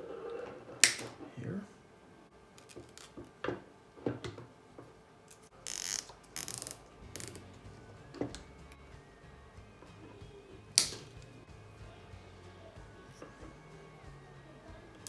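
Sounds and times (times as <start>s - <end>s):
straps zipping tight: 5.4s - 7.4s.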